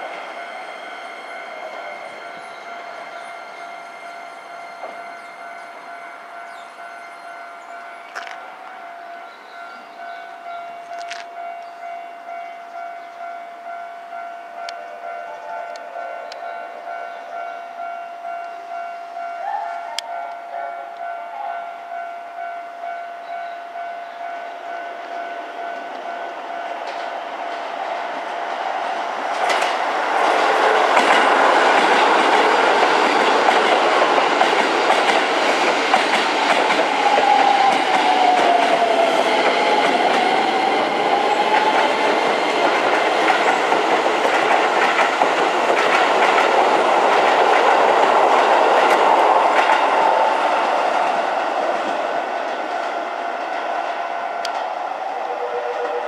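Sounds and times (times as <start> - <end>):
train whine: 0.0 - 56.0
rush of train cars: 25.4 - 56.0
wheels clacking over rail joints: 26.8 - 53.7.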